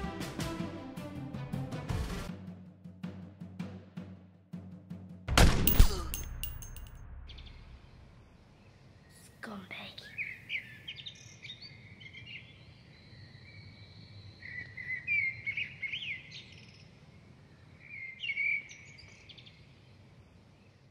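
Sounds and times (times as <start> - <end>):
small birds chirping: 8.6 - 20.9.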